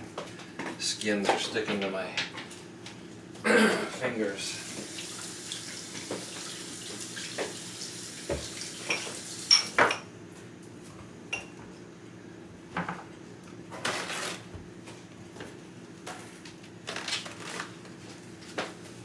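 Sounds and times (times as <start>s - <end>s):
running tap water hiss: 4.4s - 9.9s
dishes and utensils clattering: 8.8s - 10.0s.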